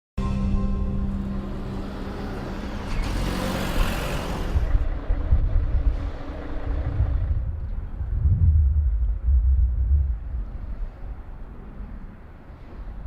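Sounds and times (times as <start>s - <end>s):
car driving past: 1.0s - 7.8s
wind rumble on microphone: 3.7s - 13.0s.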